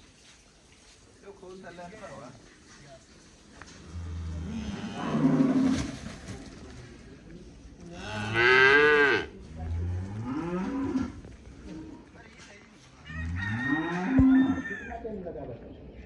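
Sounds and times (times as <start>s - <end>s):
calves mooing: 3.9s - 5.7s, 13.2s - 14.8s.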